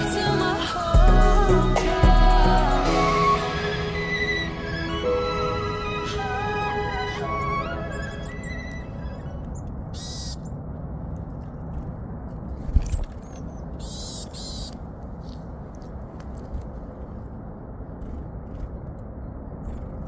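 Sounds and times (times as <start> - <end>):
low background rush: 0.0 - 20.0
high bird calls: 3.0 - 10.6, 12.9 - 14.8.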